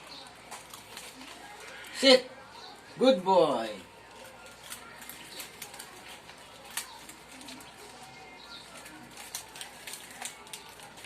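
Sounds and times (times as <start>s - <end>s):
crackling clicks: 4.1s - 8.0s.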